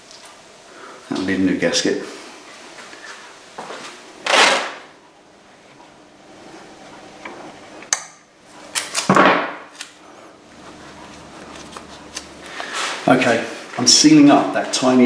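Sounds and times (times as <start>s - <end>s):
rasping on engine casing: 10.5s - 13.1s.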